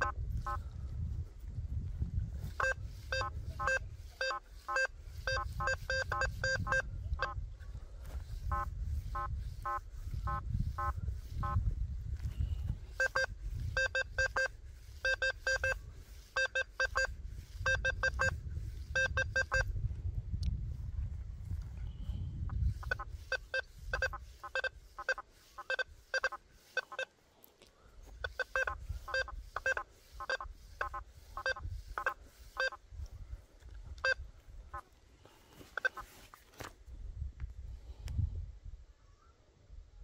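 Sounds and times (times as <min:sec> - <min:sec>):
metal detector beeps: 0:02.5 - 0:07.4, 0:12.9 - 0:19.7, 0:22.8 - 0:27.1, 0:28.2 - 0:32.8, 0:34.0 - 0:34.2, 0:35.8 - 0:36.0.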